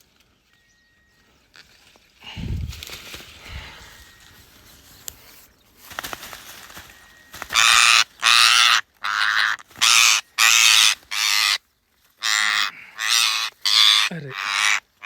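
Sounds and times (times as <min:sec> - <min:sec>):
parrot screeching: 0:07.5 - 0:11.6, 0:12.2 - 0:14.8.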